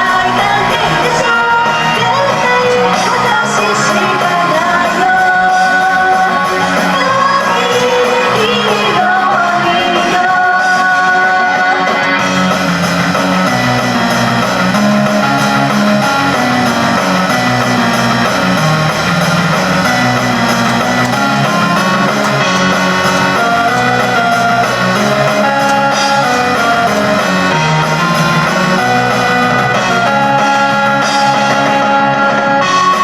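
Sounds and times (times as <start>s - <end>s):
woman singing: 0.0s - 12.3s
upbeat pop song with band: 0.0s - 33.0s.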